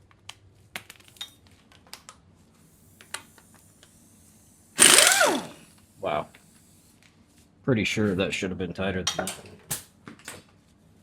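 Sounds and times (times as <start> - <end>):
impact wrench firing: 4.8 - 5.6.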